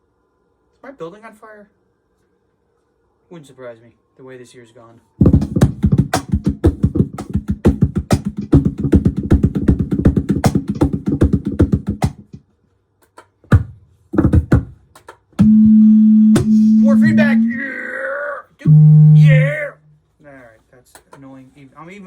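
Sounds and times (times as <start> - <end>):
cajon hand strikes: 5.2 - 12.4, 13.5 - 15.2, 16.4 - 16.7
low effect tone: 15.4 - 17.6, 18.6 - 20.0
loud feedback tone: 15.4 - 17.8, 18.6 - 20.0.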